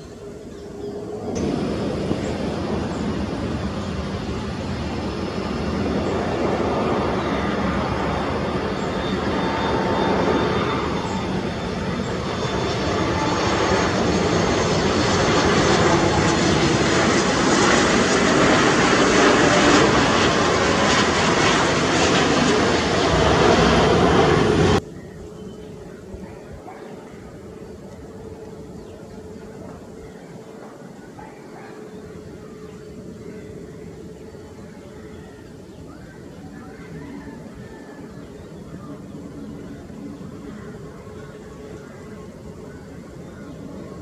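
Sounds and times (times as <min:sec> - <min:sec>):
jet engines rushing: 0:00.0 - 0:44.0.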